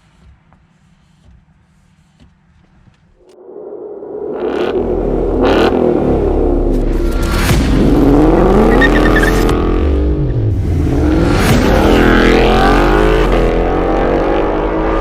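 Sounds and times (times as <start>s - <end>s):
car engine revving: 4.0s - 15.0s.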